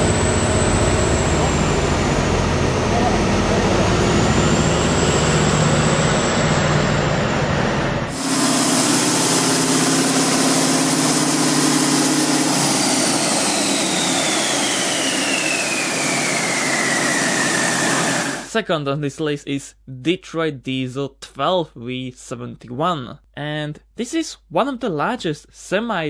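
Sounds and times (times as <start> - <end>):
diesel engine running: 0.0 - 18.5
high whine: 0.0 - 18.5.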